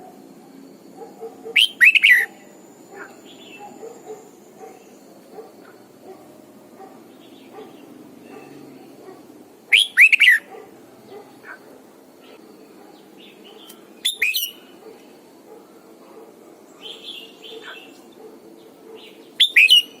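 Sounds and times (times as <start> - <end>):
faint bird chirps: 0.5 - 5.8, 12.2 - 15.1, 18.9 - 20.0
bird whistled song: 1.5 - 2.5, 9.7 - 10.5, 13.6 - 14.6, 19.0 - 20.0.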